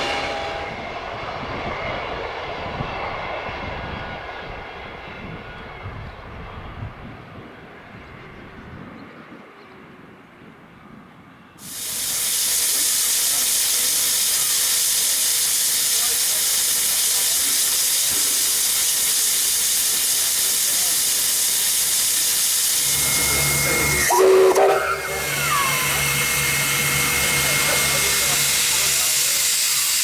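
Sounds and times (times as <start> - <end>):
steam locomotive hissing: 0.0 - 2.0, 11.6 - 30.0
low hum: 0.0 - 6.5, 22.8 - 29.6.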